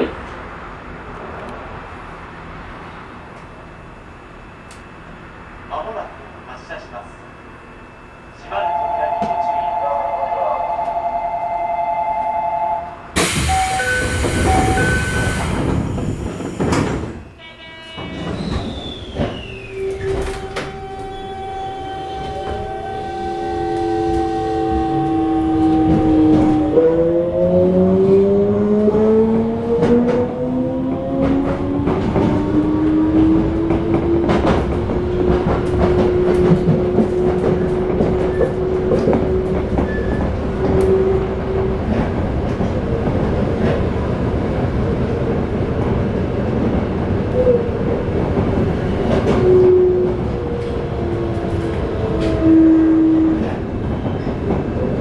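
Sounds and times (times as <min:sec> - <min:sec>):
loud air hiss: 0:13.2 - 0:15.6.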